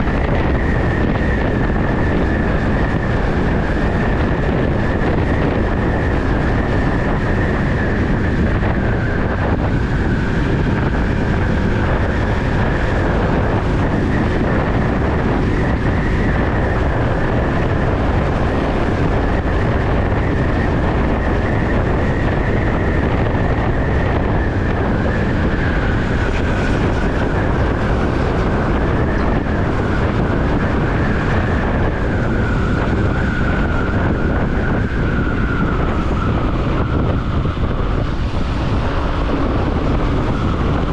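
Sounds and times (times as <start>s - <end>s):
wind on microphone: 0.0s - 40.9s.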